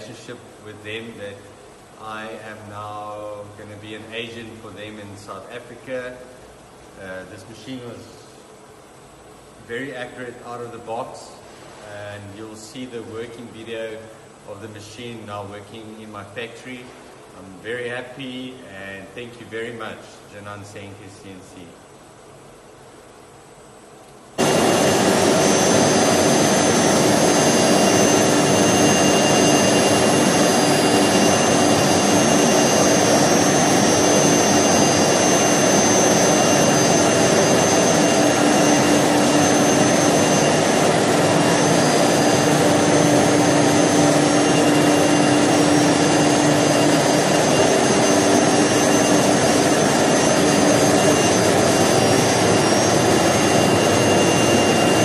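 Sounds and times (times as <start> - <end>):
router machine running with whine: 24.4 - 55.0.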